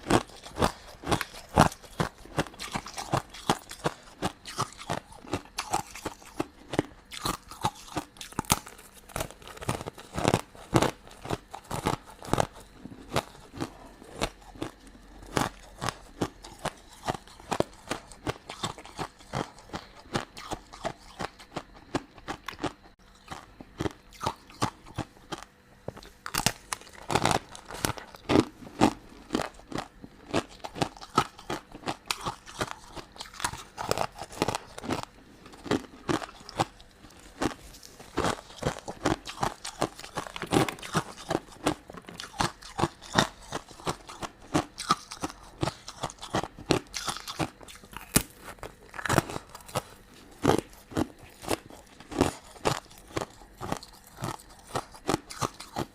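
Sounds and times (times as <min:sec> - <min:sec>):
chewing crunchy sweets: 0:00.0 - 0:55.9.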